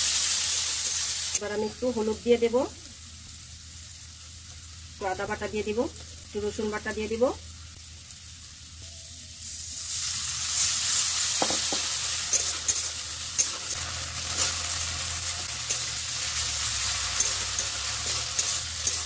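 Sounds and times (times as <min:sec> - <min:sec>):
masala sizzling in hot oil: 0:00.0 - 0:19.0
metal spatula scraping a pan: 0:11.8 - 0:19.0.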